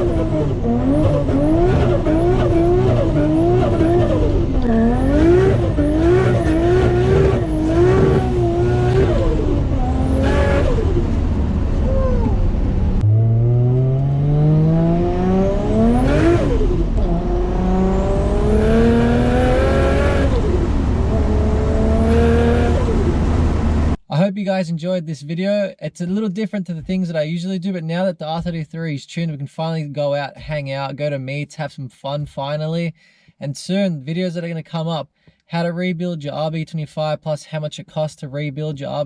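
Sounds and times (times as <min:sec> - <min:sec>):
turbocharged car engine revving: 0:00.0 - 0:24.0.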